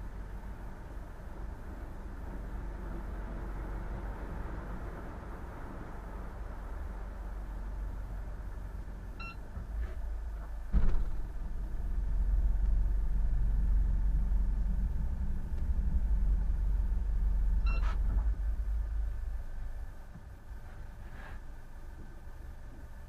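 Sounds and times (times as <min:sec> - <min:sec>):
engine low rumble: 0:00.0 - 0:23.0
short electronic beeps: 0:09.2 - 0:09.5, 0:17.6 - 0:18.0.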